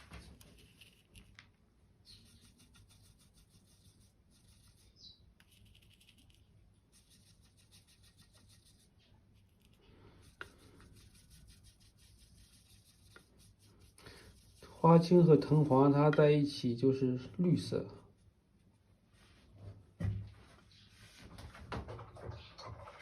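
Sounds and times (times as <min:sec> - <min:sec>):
brush scraping on palette: 0:00.0 - 0:16.2.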